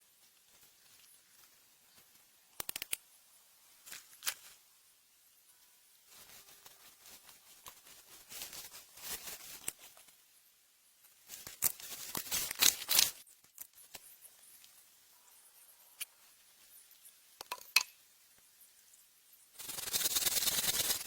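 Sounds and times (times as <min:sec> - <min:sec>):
rustling and crackling handling: 0:00.0 - 0:03.0, 0:03.8 - 0:04.6, 0:06.0 - 0:10.2, 0:11.0 - 0:14.9.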